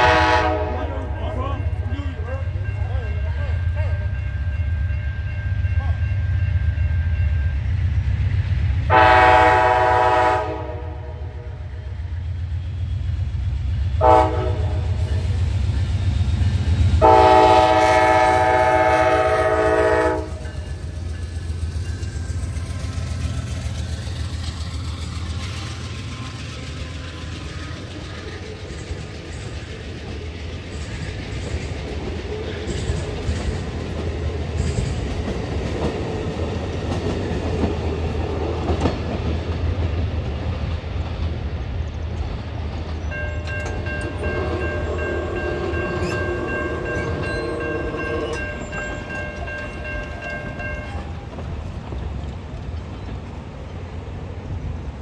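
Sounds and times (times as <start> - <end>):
multi-chime train horn: 0.0 - 7.6, 8.9 - 11.7, 14.0 - 15.3, 17.0 - 20.8, 43.1 - 51.2
diesel locomotive engine: 0.0 - 55.0.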